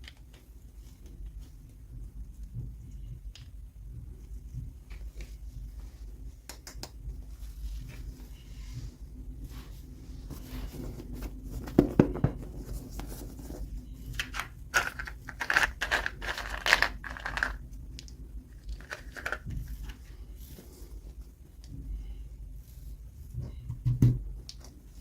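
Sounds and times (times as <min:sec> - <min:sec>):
packaging tearing and crinkling: 0:14.2 - 0:17.6.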